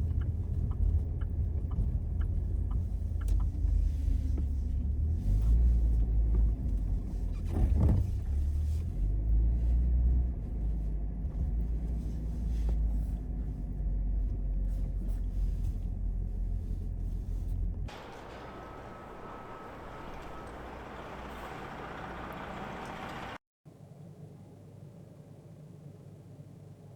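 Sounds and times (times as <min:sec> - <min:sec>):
car driving rumble: 0:00.0 - 0:23.4.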